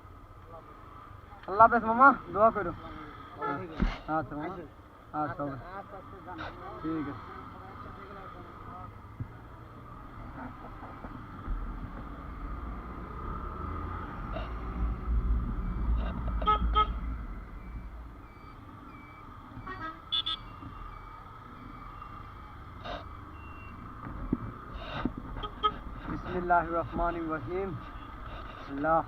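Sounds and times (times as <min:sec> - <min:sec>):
road traffic rumble: 0:00.0 - 0:29.0
vehicle horn toots: 0:16.4 - 0:17.0, 0:19.6 - 0:20.6.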